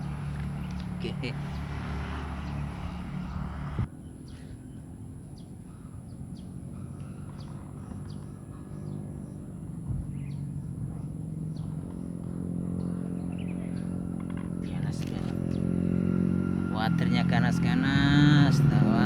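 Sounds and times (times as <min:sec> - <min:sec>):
bird chirps: 0:00.0 - 0:03.4.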